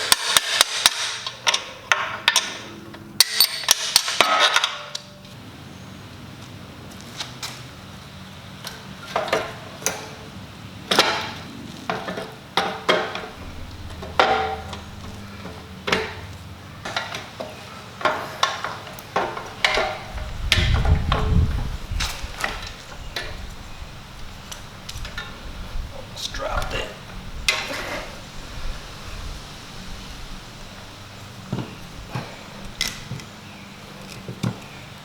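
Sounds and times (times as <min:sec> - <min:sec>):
heavy low thud: 0:13.3 - 0:17.0.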